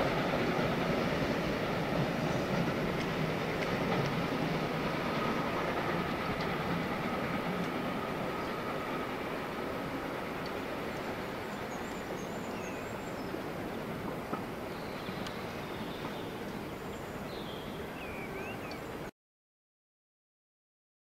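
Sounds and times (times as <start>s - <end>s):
train rumbling: 0.0s - 19.1s
small birds chirping: 10.9s - 13.6s, 14.7s - 18.9s.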